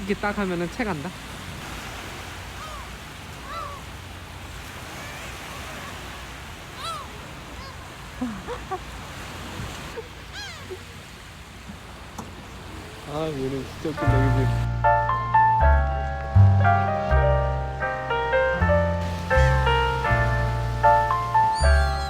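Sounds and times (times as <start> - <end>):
seagulls calling: 2.5 - 3.9, 4.8 - 9.0, 9.9 - 11.0, 19.0 - 22.0.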